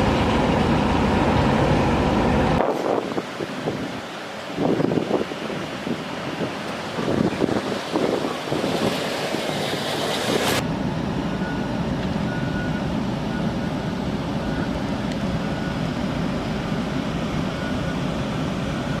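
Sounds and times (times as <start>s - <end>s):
large vehicle engine rumbling: 0.0s - 19.0s
wind buffeting microphone: 2.0s - 10.6s.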